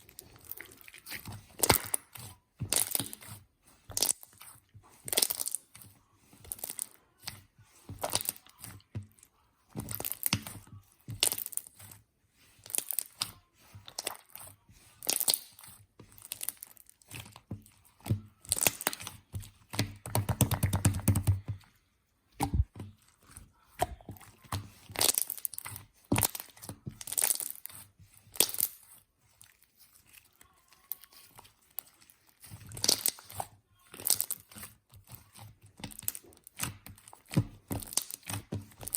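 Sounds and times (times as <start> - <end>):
slime crackling and popping: 0.0 - 3.3, 12.6 - 14.4, 15.0 - 17.4, 18.4 - 21.4, 23.8 - 30.2, 30.8 - 38.9.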